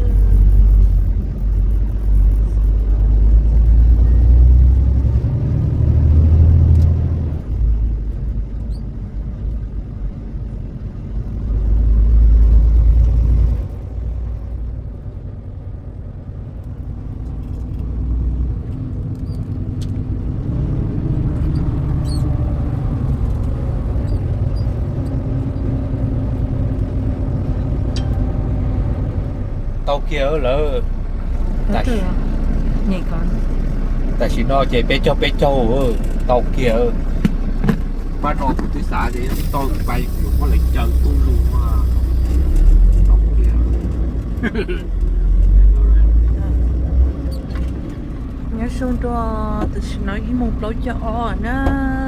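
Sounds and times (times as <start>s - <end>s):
truck engine and road rumble: 0.0s - 52.0s.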